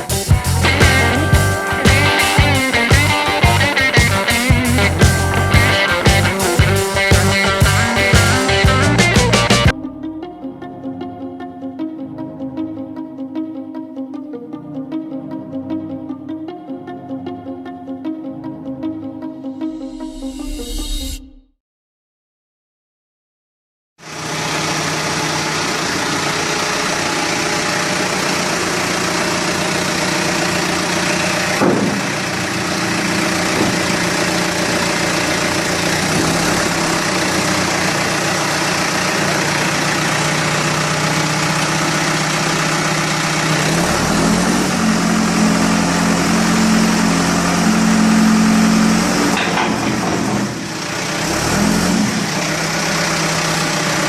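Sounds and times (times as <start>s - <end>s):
diesel engine running: 0.0s - 9.8s, 24.0s - 54.0s.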